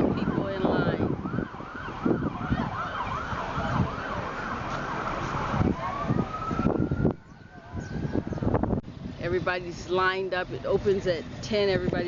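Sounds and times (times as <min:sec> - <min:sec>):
emergency siren: 0:00.0 - 0:08.8
low traffic rumble: 0:00.0 - 0:12.0.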